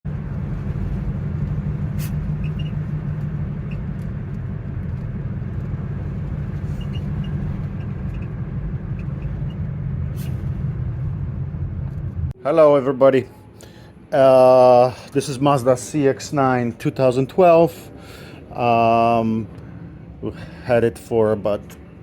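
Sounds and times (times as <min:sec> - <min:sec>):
car road and engine rumble: 0:00.0 - 0:12.4, 0:13.1 - 0:22.0
dashboard squeaks: 0:01.8 - 0:04.4, 0:06.1 - 0:10.6.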